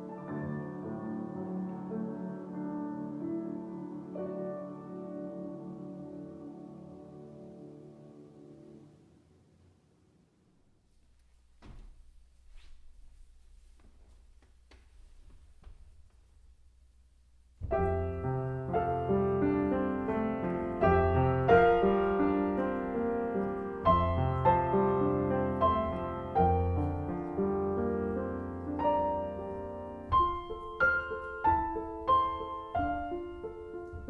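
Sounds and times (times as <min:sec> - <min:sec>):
slow piano chords: 0:00.0 - 0:09.2, 0:13.1 - 0:34.0.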